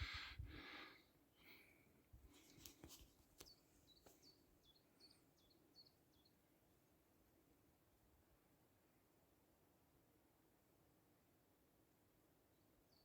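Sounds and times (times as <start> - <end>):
distant songbird chirping: 3.4 - 6.5, 12.5 - 13.0.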